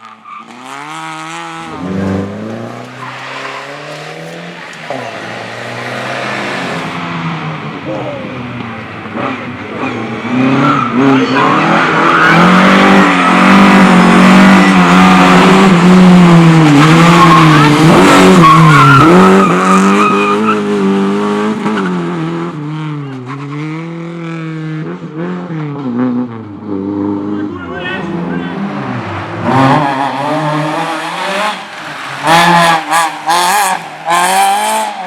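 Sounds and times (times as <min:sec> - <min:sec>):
race car engine revving: 0:00.0 - 0:35.0
tyres squealing: 0:01.6 - 0:13.9.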